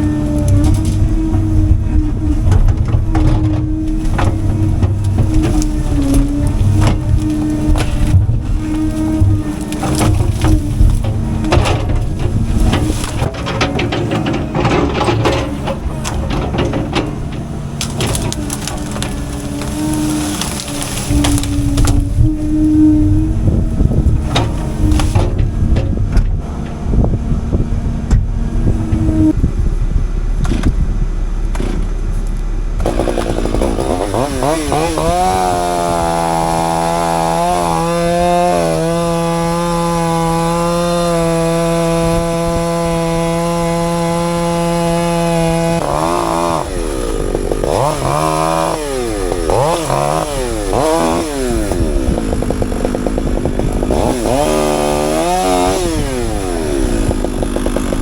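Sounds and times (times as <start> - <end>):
chainsaw revving: 0.0 - 13.4, 32.8 - 58.0
low engine rumble: 0.0 - 58.0.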